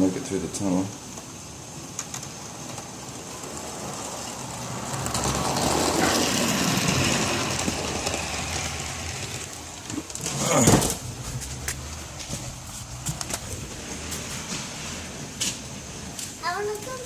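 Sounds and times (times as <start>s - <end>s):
wheels rolling on rails: 0.0s - 17.0s
model train motor whirring: 1.1s - 11.2s.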